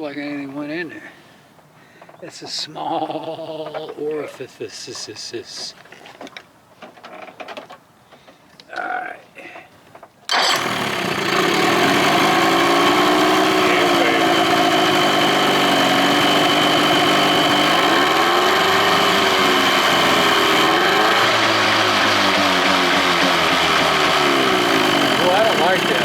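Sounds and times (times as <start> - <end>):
outboard motor idling: 10.3 - 26.0.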